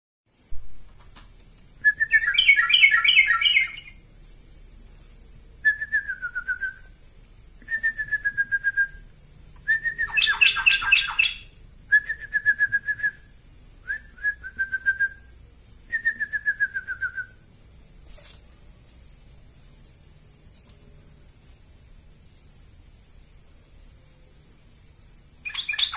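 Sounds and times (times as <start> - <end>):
faint high whine: 0.3 - 25.9
bulbul singing: 1.8 - 4.0, 7.6 - 17.5, 25.4 - 25.9.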